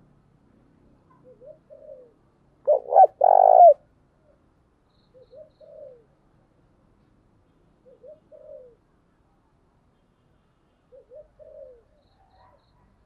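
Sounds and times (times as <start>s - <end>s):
dove cooing: 1.2s - 3.8s, 5.3s - 6.1s, 7.8s - 8.8s, 10.9s - 11.9s.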